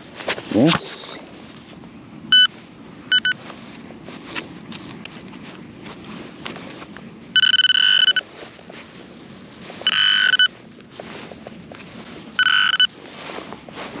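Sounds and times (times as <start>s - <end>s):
scraping and rustling of soil: 0.0s - 1.8s, 2.4s - 14.0s
pinpointer high buzzing tone: 7.3s - 8.3s, 9.8s - 10.5s, 12.4s - 13.0s.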